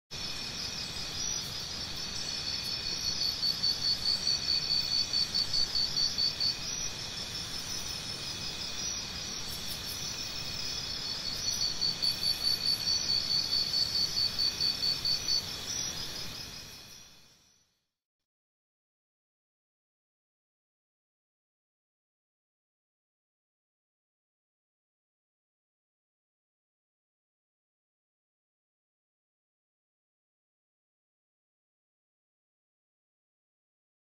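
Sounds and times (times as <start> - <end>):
crickets chirping: 0.2 - 17.8.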